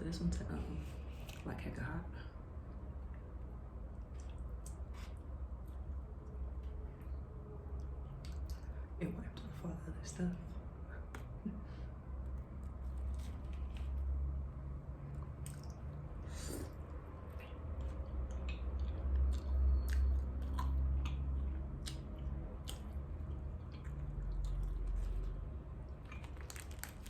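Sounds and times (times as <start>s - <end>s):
steady low hum: 0.0s - 27.0s
wet mouth clicks and smacks: 4.1s - 4.9s, 15.4s - 16.0s, 17.4s - 25.0s
person chewing: 15.2s - 27.0s.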